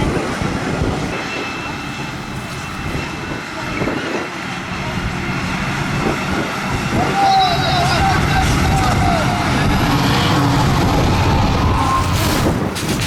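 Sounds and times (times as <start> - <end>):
people talking: 7.0 - 9.9.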